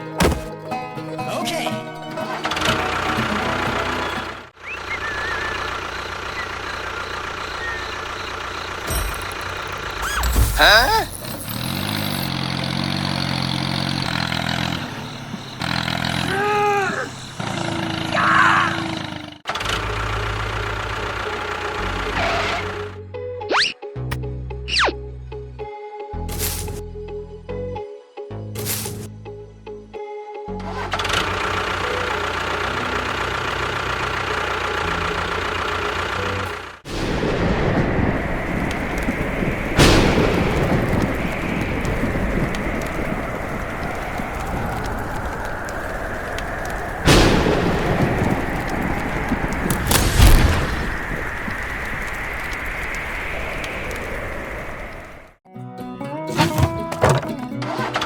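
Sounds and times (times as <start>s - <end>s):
rough noisy rumble: 2.0s - 23.0s, 30.9s - 55.4s
low engine hum: 2.1s - 16.4s, 18.8s - 23.3s, 30.6s - 55.4s.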